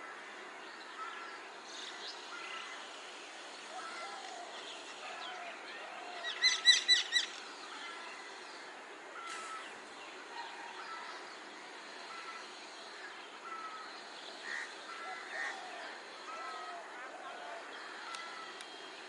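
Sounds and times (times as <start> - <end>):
myna bird calling: 3.7 - 8.4.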